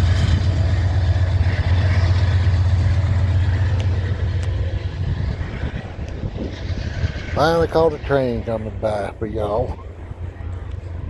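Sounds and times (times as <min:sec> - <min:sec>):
locomotive engine drone: 0:00.0 - 0:11.0
train passing: 0:00.0 - 0:11.0.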